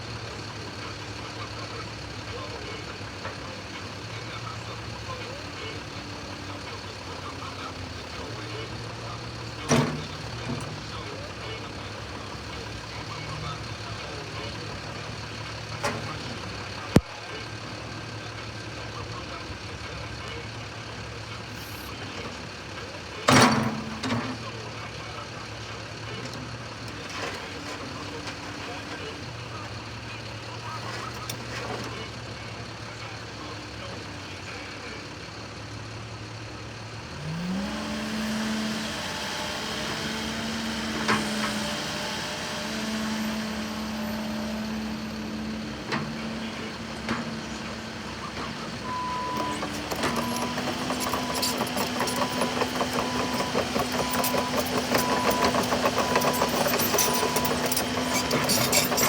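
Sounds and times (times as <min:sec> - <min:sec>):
excavator diesel engine revving: 0:00.0 - 0:20.1, 0:20.8 - 0:59.0.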